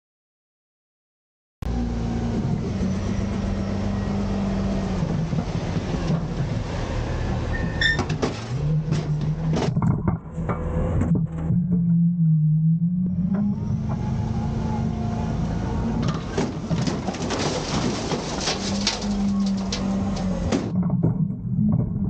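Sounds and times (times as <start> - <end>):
garbage truck diesel engine: 1.6 - 20.8
high squeal: 7.4 - 8.1
metallic knocks and clatters: 16.0 - 21.9.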